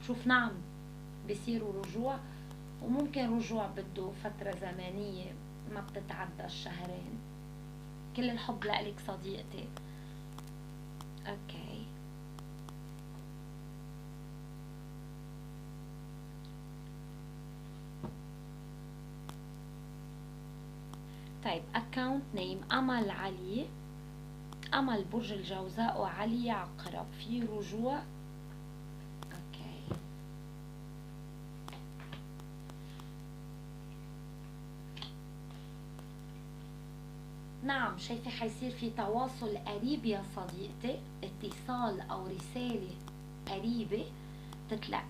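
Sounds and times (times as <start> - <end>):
electrical mains hum: 0.0 - 45.0
soft clicks and taps: 9.7 - 11.2.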